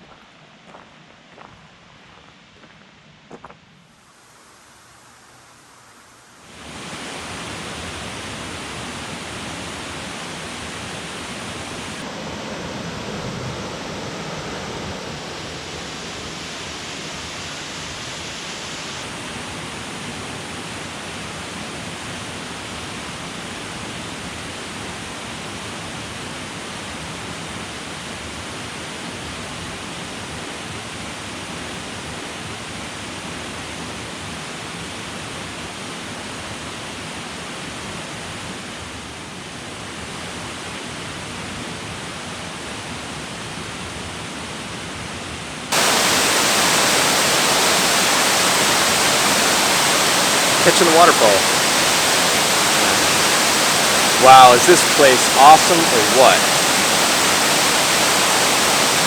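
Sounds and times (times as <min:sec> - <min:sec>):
waterfall rushing: 0:06.6 - 0:12.1, 0:45.7 - 0:59.0.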